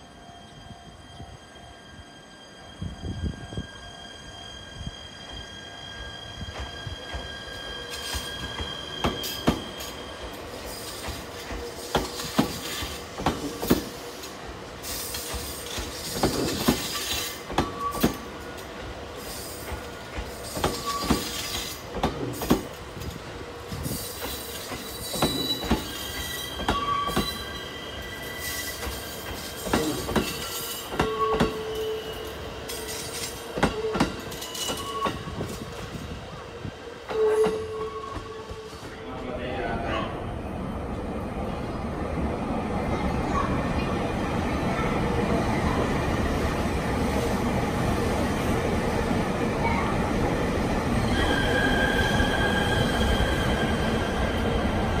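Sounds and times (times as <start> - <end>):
train rolling slowly: 0.0 - 55.0
wheel squeals: 19.2 - 21.8, 23.8 - 35.6.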